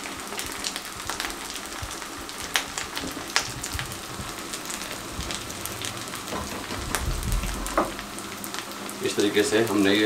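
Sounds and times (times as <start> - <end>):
meat patty sizzling in oil: 0.0 - 10.0.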